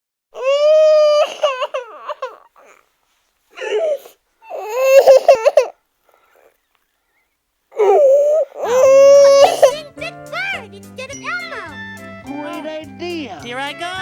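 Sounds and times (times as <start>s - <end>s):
high-pitched voice crying out: 0.4s - 2.3s, 7.8s - 9.9s.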